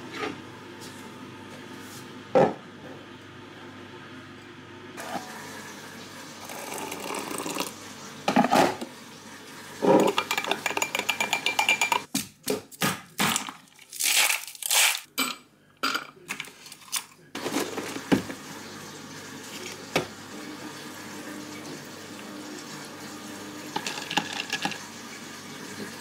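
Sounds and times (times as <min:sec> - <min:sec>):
dishes and utensils clattering: 0:09.8 - 0:12.1, 0:23.7 - 0:24.8.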